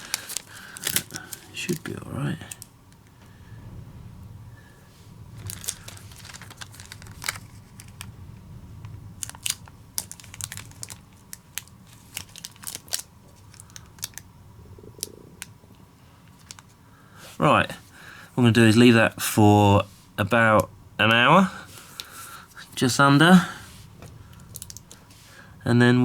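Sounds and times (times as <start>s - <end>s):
adhesive tape tearing and crackling: 0.0s - 1.9s, 5.4s - 8.1s, 9.2s - 14.2s.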